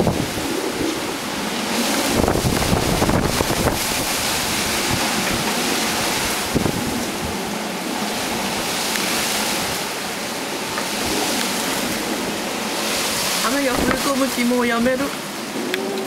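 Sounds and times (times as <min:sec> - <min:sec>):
driving rain: 0:00.0 - 0:16.0
wind buffeting microphone: 0:00.0 - 0:16.0
wind gusting: 0:00.0 - 0:16.0.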